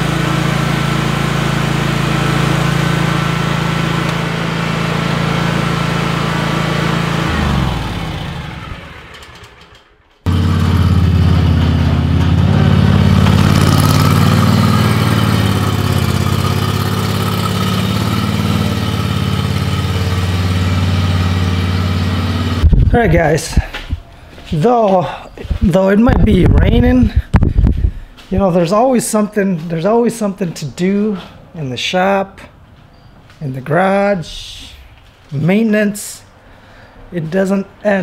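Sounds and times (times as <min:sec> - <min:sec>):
second engine running: 0:00.0 - 0:24.0
motor vehicle engine running: 0:00.0 - 0:24.6, 0:25.4 - 0:28.6.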